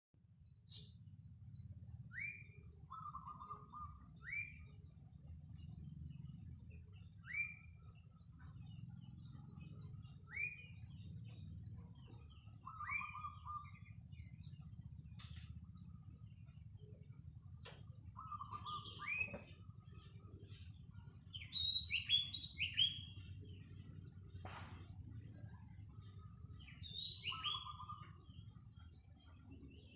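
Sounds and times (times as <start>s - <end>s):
birds high chipping: 0.2s - 29.9s
low steady hum: 0.2s - 29.9s
bird trill: 0.5s - 29.9s
sharp click: 15.1s - 15.5s.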